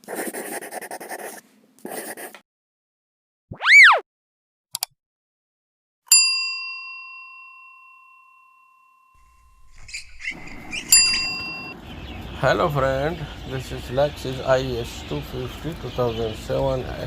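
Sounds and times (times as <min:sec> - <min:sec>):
tone sweeping up and down: 0:03.5 - 0:04.0
clicks: 0:04.7 - 0:04.9
bell-like ding: 0:06.1 - 0:09.4, 0:10.9 - 0:11.8.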